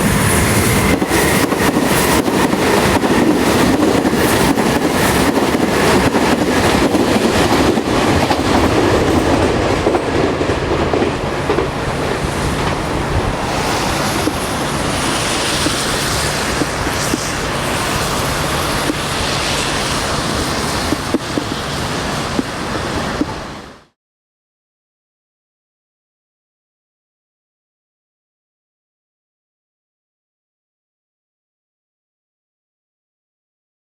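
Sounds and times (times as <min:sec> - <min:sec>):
electric train running: 0:00.0 - 0:23.9
wheels clicking over rail joints: 0:14.0 - 0:23.4.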